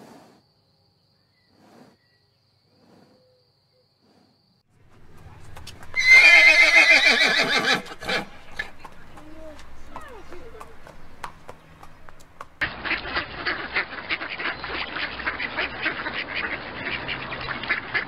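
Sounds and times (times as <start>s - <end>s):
horse neighing: 5.8s - 10.9s.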